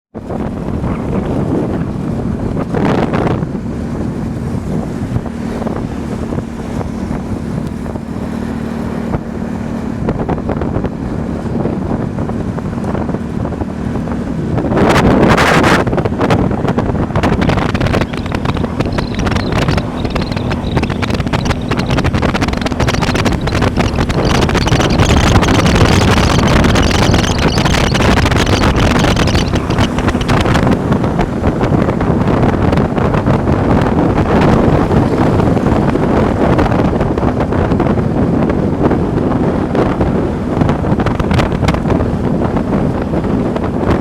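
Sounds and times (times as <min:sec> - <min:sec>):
wind noise on microphone: 0:00.1 - 0:44.0
engine humming: 0:00.2 - 0:44.0
loud rush of noise: 0:13.6 - 0:37.8.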